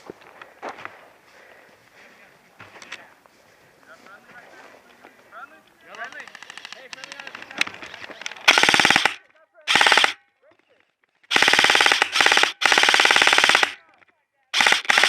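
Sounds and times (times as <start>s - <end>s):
airsoft gun automatic bursts: 5.9s - 10.2s, 11.3s - 15.0s.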